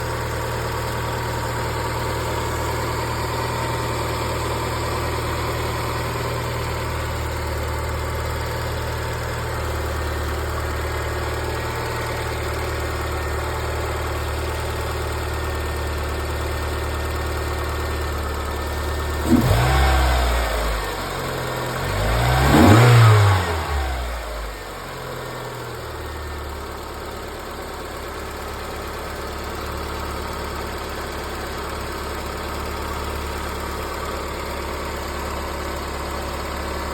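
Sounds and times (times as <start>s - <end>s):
car engine idling and revving: 0.0s - 36.9s.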